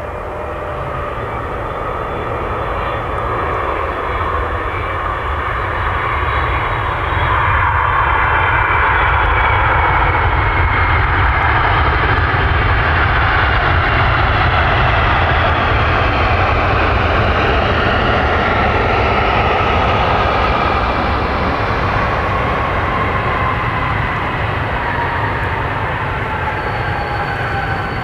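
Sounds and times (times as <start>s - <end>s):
jet engines passing: 0.0s - 28.0s.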